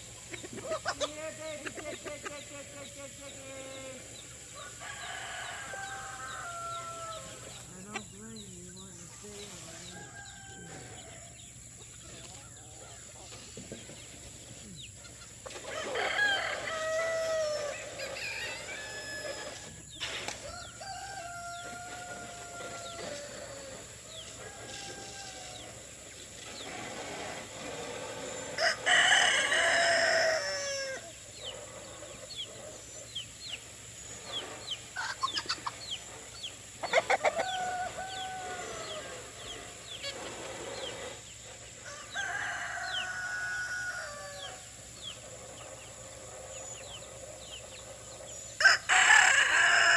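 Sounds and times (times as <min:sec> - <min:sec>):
hens clucking: 0:00.0 - 0:49.9
roosters crowing: 0:00.0 - 0:49.9.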